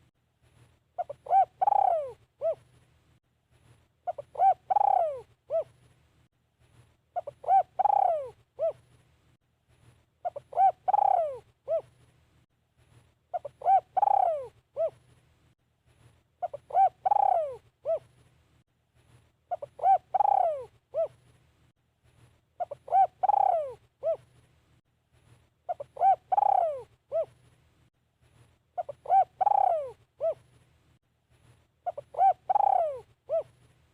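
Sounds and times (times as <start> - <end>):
dove cooing: 1.0 - 2.7, 4.0 - 5.8, 7.2 - 8.8, 10.2 - 12.0, 13.3 - 15.0, 16.4 - 18.1, 19.5 - 21.2, 22.6 - 24.3, 25.7 - 27.4, 28.8 - 30.5, 31.8 - 33.6.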